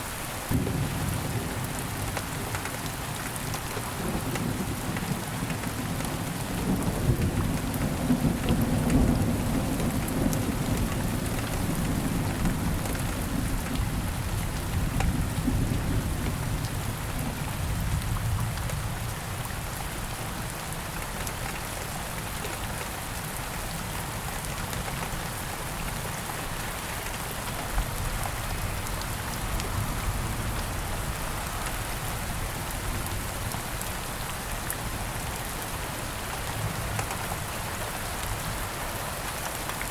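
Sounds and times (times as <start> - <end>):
steady rain falling: 0.0 - 39.9
low rumble of thunder: 0.5 - 2.5, 3.9 - 19.7.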